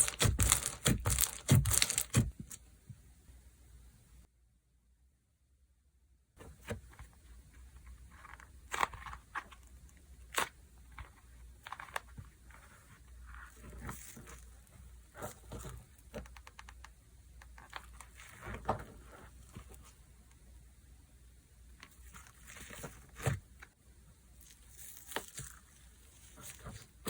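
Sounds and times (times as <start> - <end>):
slime squelching by hand: 0.0 - 2.5.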